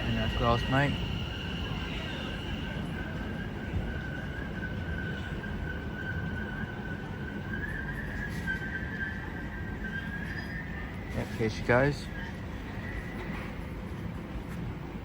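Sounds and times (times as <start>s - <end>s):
train motor whine: 0.0s - 6.4s
wheels rumbling on rail: 0.0s - 15.0s.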